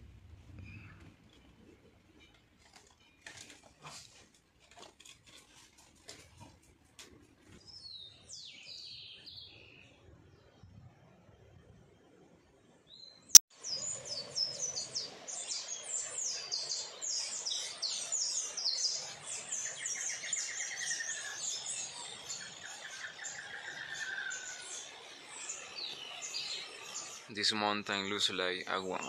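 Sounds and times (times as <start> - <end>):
birds chirping and singing: 13.0 - 27.6.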